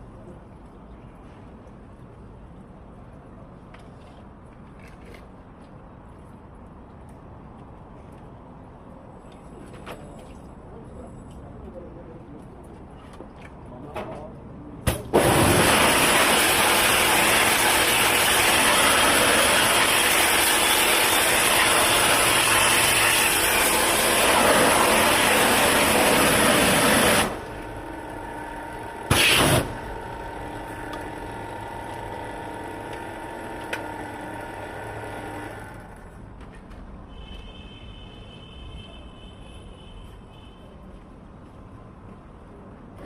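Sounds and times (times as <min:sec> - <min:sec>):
pressure washer spraying: 0:14.9 - 0:35.5
steady hum: 0:14.9 - 0:35.8.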